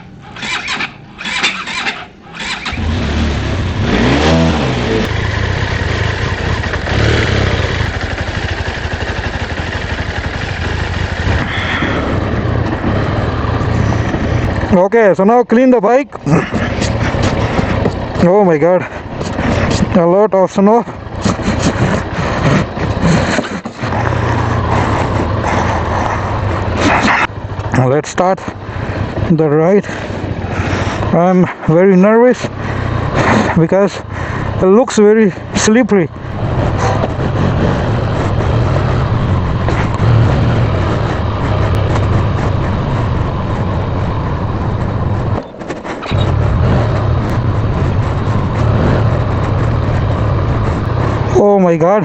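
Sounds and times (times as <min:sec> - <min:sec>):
motorcycle engine idling: 0:00.0 - 0:14.8, 0:16.2 - 0:31.3, 0:32.0 - 0:52.0.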